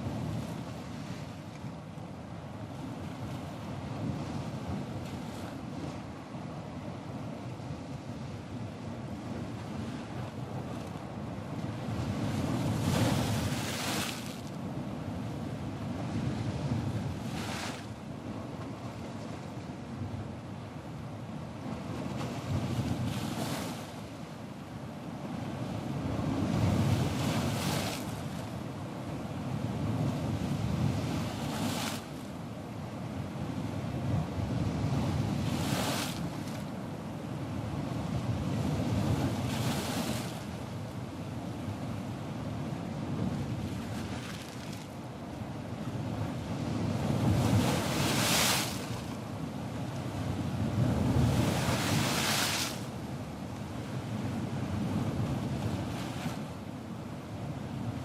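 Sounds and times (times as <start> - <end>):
waves breaking and washing in: 0.0 - 58.0
ocean waves breaking: 46.3 - 49.2, 49.9 - 53.0.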